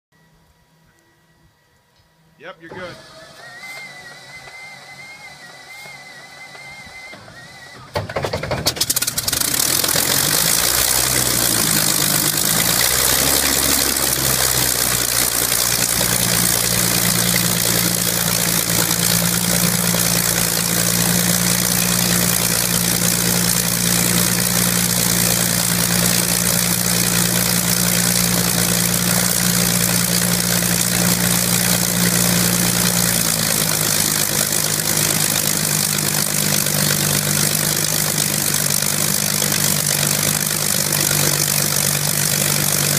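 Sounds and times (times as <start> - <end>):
aircraft engine idling: 2.9 - 42.9.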